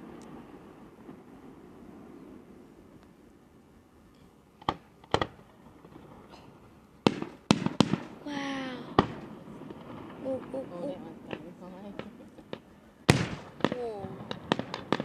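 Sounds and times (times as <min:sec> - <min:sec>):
fireworks bursting with sharp bangs: 0:04.5 - 0:15.0.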